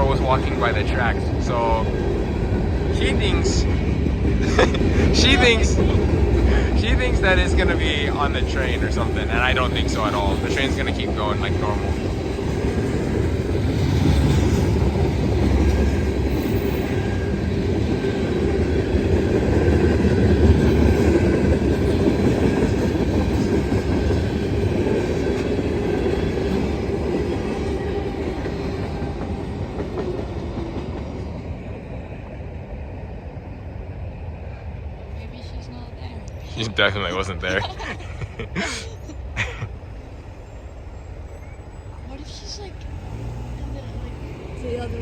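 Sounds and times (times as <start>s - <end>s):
freight train wheels on rails: 0.0s - 45.0s.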